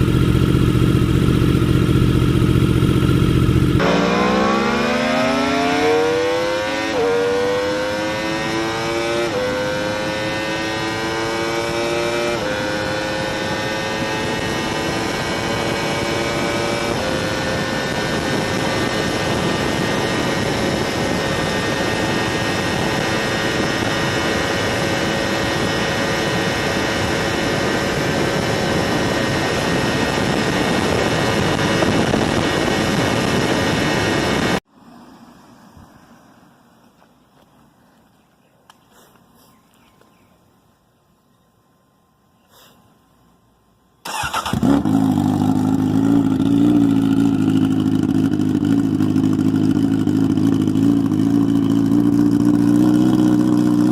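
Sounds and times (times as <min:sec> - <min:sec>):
motorcycle engine accelerating: 0:00.0 - 0:34.7, 0:44.0 - 0:53.9
wind noise: 0:12.8 - 0:34.6.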